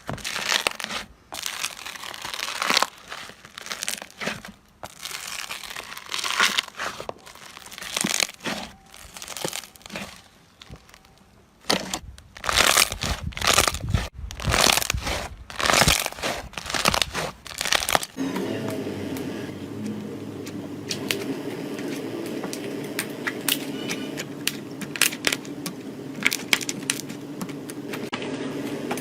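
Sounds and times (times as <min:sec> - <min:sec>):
steady mechanical hum: 0:12.8 - 0:29.0.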